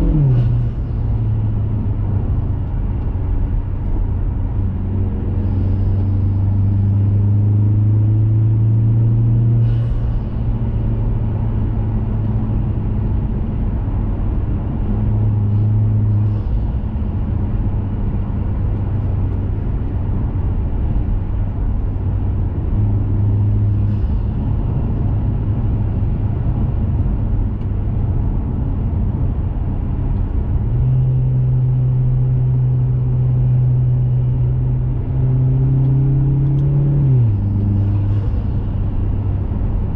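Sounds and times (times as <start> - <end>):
car engine and exhaust: 0.0 - 39.9.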